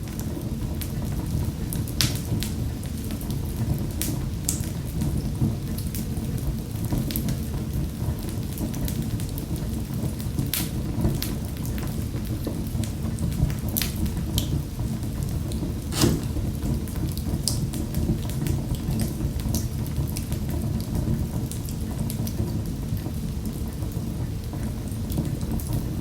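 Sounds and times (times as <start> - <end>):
wood fire crackling and popping: 15.9 - 16.6.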